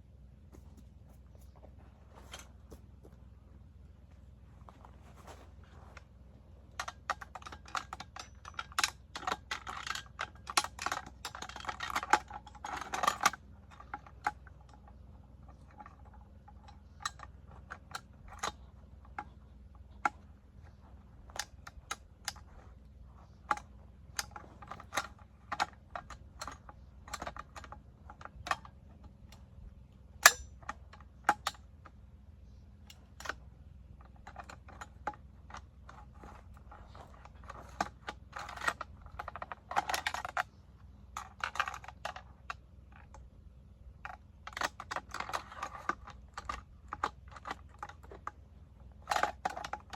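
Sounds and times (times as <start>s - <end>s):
machine gun parts clicking: 2.2s - 2.6s, 6.7s - 32.0s, 32.8s - 43.3s, 44.0s - 49.9s.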